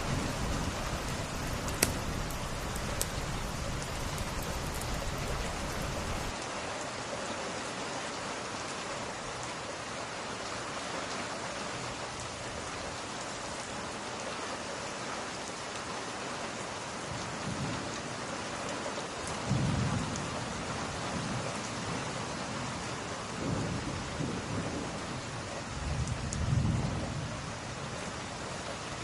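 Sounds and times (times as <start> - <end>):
thunder rolling: 0.0 - 6.3
steady rain: 0.0 - 29.0.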